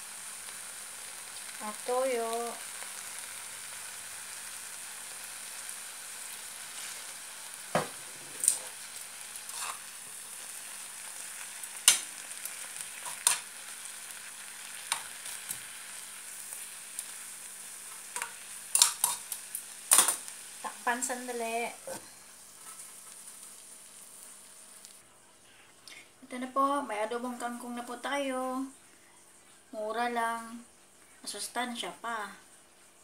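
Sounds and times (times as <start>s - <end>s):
vegetables sizzling in hot oil: 0.0s - 25.0s, 26.3s - 33.0s
metal tongs clicking on pan: 11.8s - 12.1s, 13.0s - 13.4s, 18.2s - 20.2s.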